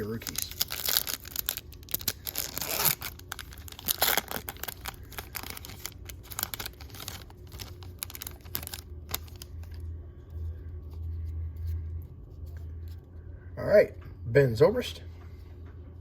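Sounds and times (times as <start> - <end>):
cards rustling and clicking: 0.0 - 9.8
wrapper crinkling and tearing: 0.0 - 9.8.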